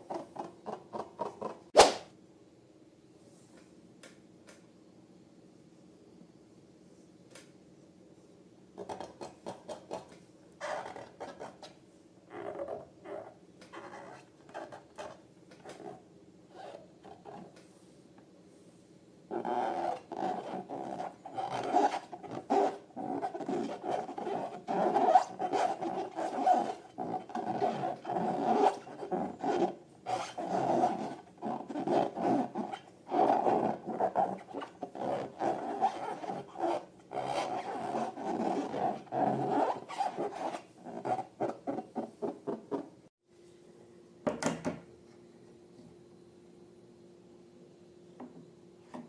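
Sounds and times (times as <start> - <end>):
sharp snap: 1.8 - 2.1
squeaky balloon rubbing: 10.6 - 11.7, 12.3 - 17.4, 19.3 - 42.9.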